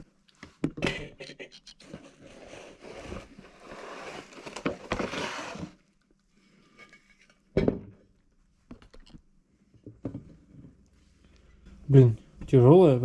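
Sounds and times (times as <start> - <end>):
scratchy rustling and scraping: 1.6 - 5.9.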